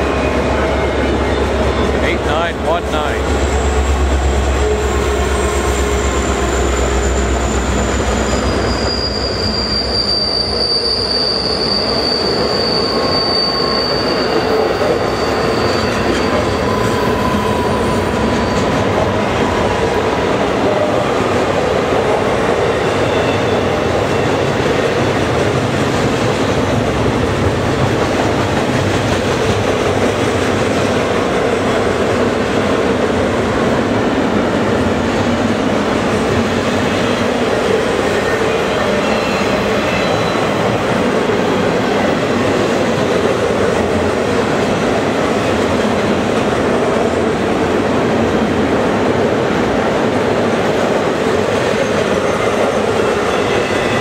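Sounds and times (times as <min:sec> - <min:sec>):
train wheels rumbling on rail: 0:00.0 - 0:54.0
wheel squeal: 0:04.8 - 0:18.8.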